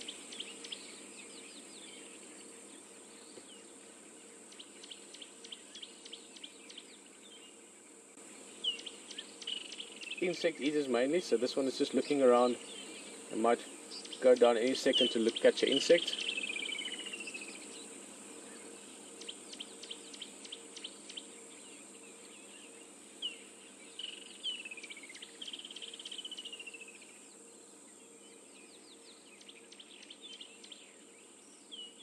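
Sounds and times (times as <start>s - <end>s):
steady high-pitched hiss: 0.0s - 32.0s
wild birds chirping: 0.0s - 32.0s
descending whistled bird calls: 8.6s - 32.0s.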